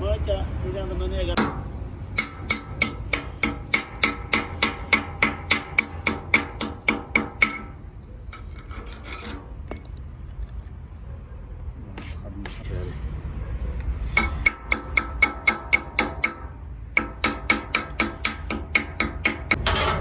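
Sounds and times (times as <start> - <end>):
hammer striking steel: 1.4 - 9.9, 14.1 - 20.0.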